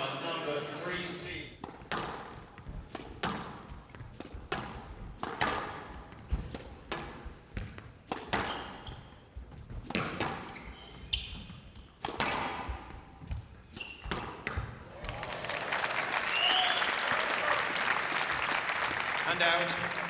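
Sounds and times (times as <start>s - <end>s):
squash ball smacking walls: 1.6s - 8.9s, 9.6s - 10.9s, 12.0s - 15.0s
shoes squeaking on floor: 5.7s - 15.0s.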